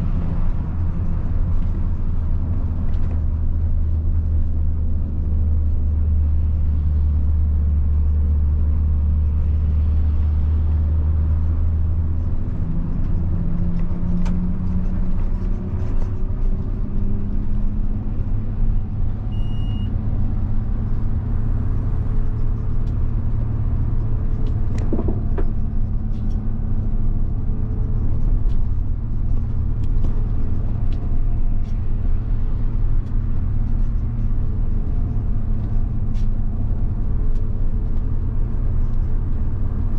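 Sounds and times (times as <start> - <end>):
bus diesel engine drone: 0.0 - 39.9
short beep: 19.3 - 19.9.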